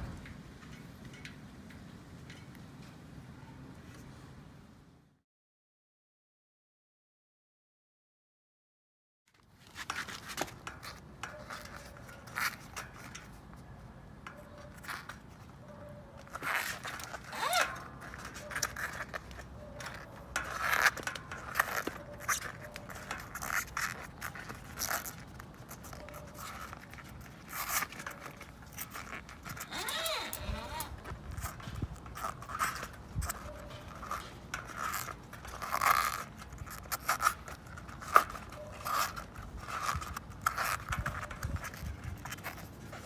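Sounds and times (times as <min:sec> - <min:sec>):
scraping and rubbing strokes: 0:09.4 - 0:43.0.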